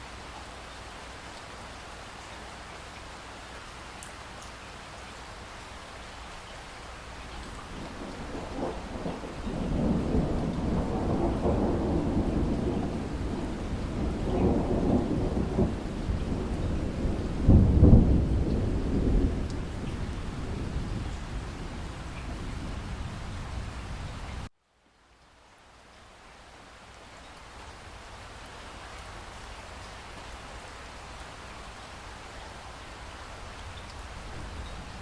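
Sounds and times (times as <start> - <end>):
steady rain: 0.0 - 35.0
thunder rolling: 7.7 - 24.5.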